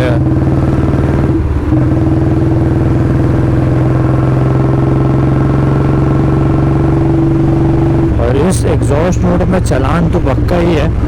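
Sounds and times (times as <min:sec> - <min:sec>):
loud motorcycle engine running: 0:00.0 - 0:11.0.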